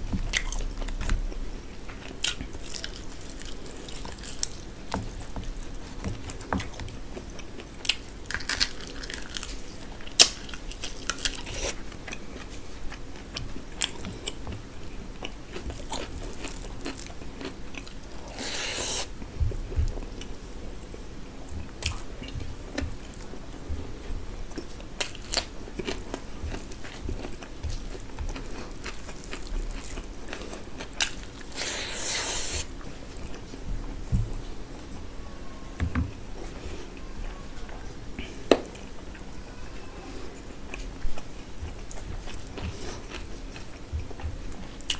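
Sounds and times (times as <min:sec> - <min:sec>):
chewing and mouth smacking: 0:24.5 - 0:33.6.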